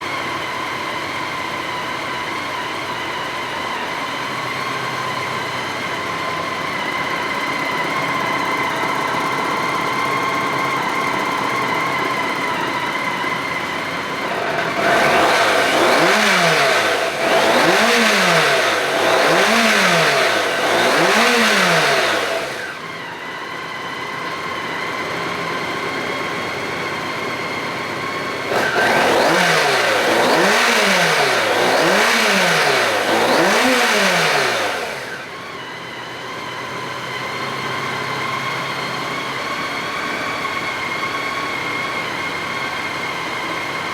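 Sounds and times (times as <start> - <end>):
motorcycle engine idling and revving: 0.0 - 43.9.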